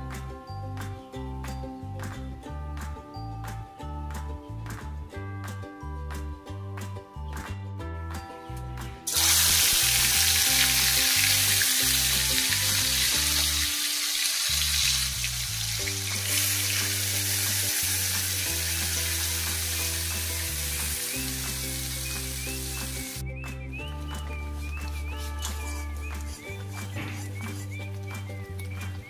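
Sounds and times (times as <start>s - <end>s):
hot oil sizzling: 9.1s - 23.2s.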